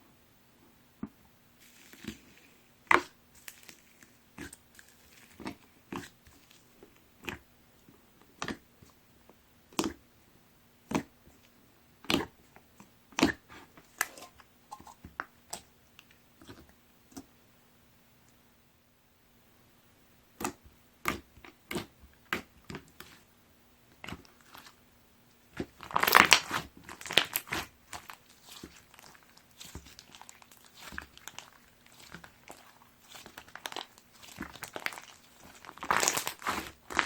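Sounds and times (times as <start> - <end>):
slime squeezed with crunchy crackles: 2.9 - 7.4, 20.4 - 23.2, 24.0 - 24.8, 25.5 - 37.0.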